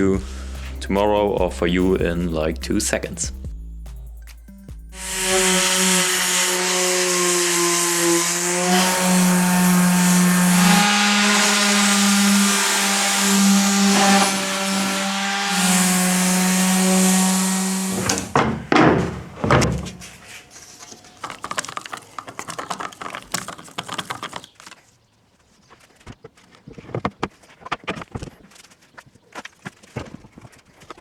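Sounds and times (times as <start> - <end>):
thumps: 3.2 - 24.8
electric sander on wood: 4.9 - 24.5.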